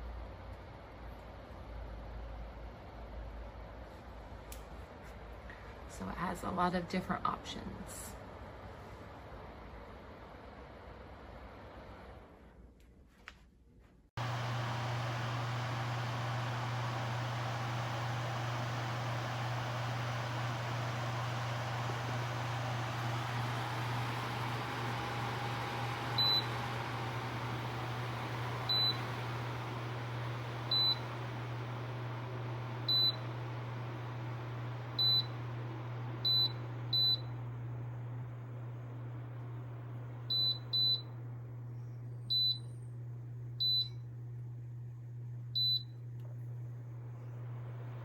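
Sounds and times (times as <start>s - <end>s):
fan airflow hiss: 14.2s - 40.2s.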